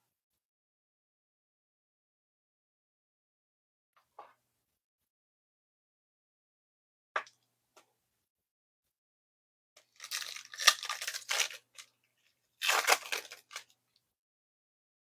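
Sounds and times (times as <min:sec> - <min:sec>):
foil wrapper tearing and crinkling: 0:09.8 - 0:11.9, 0:12.6 - 0:13.7.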